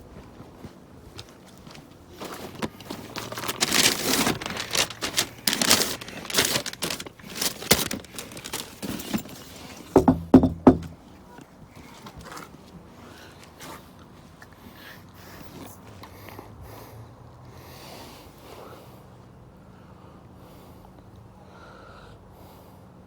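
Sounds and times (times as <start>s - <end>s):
takeaway bag rustling: 1.2s - 11.0s
thumps: 10.0s - 11.0s.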